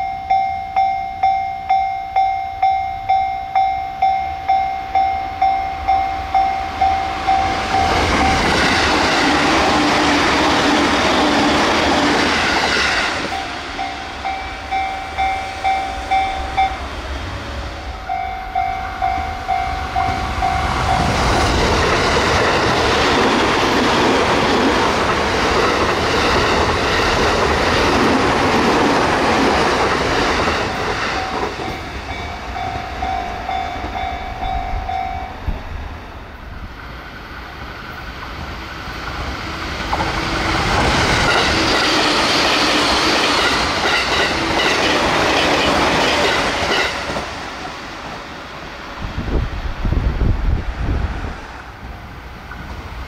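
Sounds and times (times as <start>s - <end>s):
warning bell: 0.0s - 8.7s, 13.3s - 17.1s, 17.8s - 21.4s, 30.7s - 35.5s
electric trains passing: 0.0s - 53.0s.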